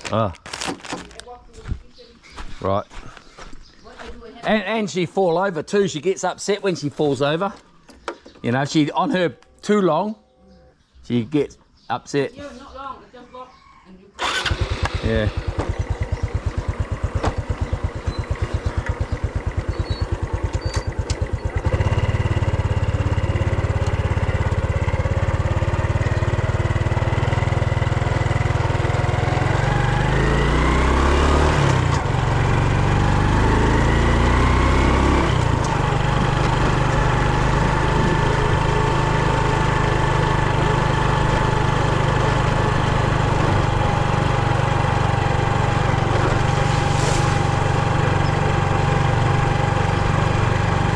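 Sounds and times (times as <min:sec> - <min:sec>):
brush cutter engine revving: 0:14.2 - 0:27.3, 0:28.8 - 0:50.9.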